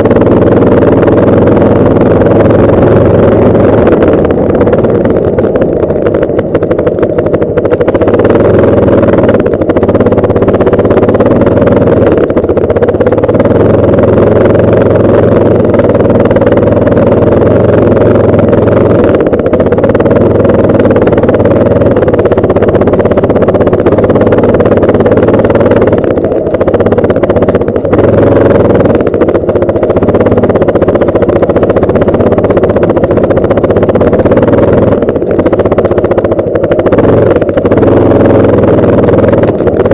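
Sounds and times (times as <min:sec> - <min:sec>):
motorcycle engine hum: 0:00.0 - 0:39.9
wind rushing over microphone: 0:00.0 - 0:39.9.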